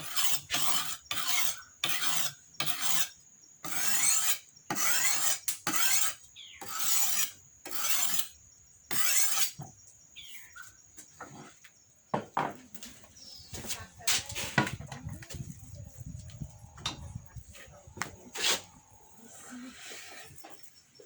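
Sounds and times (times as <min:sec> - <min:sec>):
rasping scraping strokes: 0:00.0 - 0:03.1, 0:03.7 - 0:09.6.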